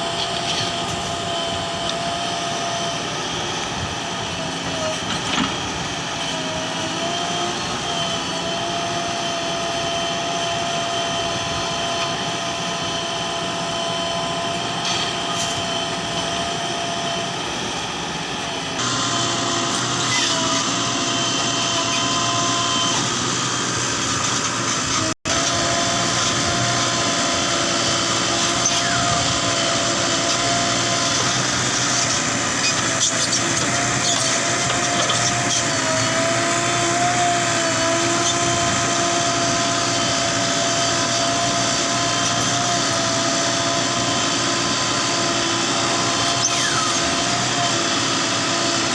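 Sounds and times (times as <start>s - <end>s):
heavy diesel machinery running: 0.0s - 48.9s.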